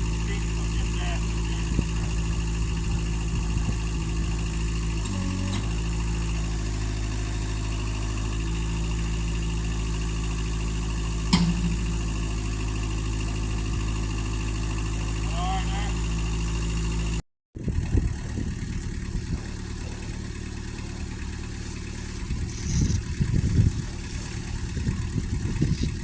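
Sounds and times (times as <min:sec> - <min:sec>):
engine idling: 0:00.0 - 0:26.0
sharp metal clank: 0:11.3 - 0:13.0.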